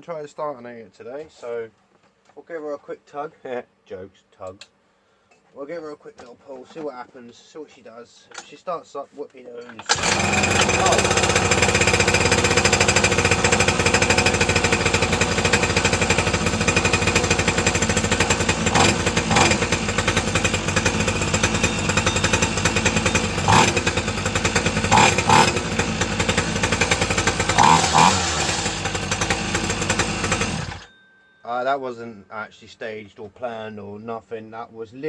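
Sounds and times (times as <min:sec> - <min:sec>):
two-stroke engine running: 0:09.9 - 0:30.9.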